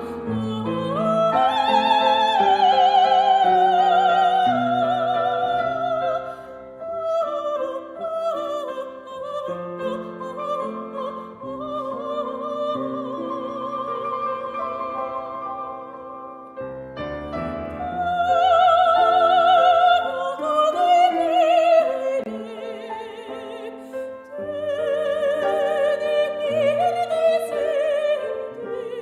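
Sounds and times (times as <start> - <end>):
soprano singing with vibrato: 0.0 - 16.8, 17.4 - 29.0
piano accompaniment: 0.0 - 29.0.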